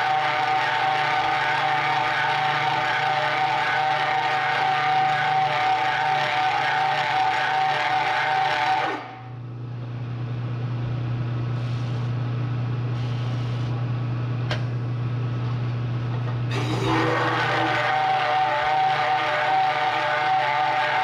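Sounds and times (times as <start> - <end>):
milling machine motor humming: 0.0 - 9.1, 16.5 - 21.0
hole saw grinding into steel: 16.5 - 21.0.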